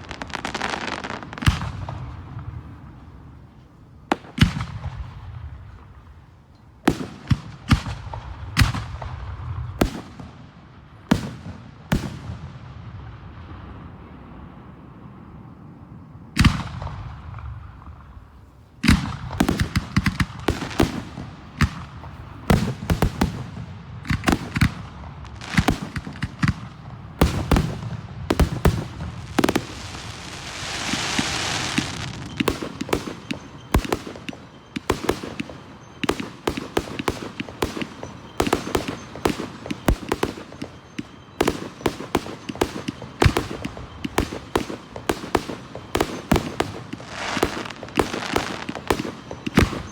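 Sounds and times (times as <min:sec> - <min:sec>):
firework reports and crackles: 0:00.0 - 0:49.9
firework hissing burst: 0:28.4 - 0:32.9, 0:46.4 - 0:49.9.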